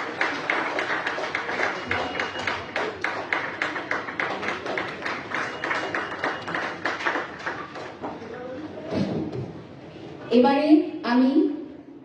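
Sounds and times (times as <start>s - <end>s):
audience clapping in rhythm: 0.0s - 8.2s.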